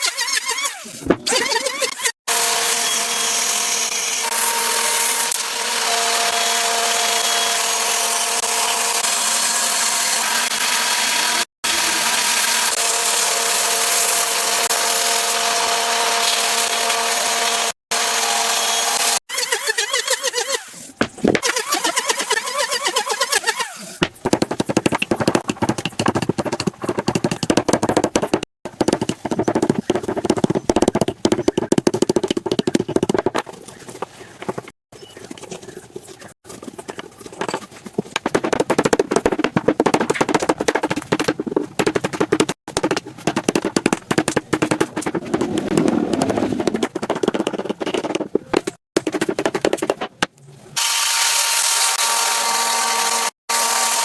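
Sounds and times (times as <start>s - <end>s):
knocking and scraping on wood: 21.0s - 21.5s, 24.0s - 34.8s, 35.4s - 50.3s.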